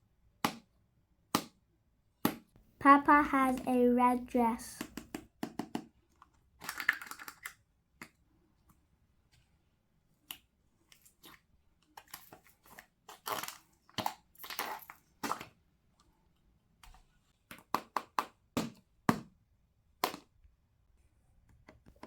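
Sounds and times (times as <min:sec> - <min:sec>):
sharp clicks and taps: 0:02.2 - 0:05.9.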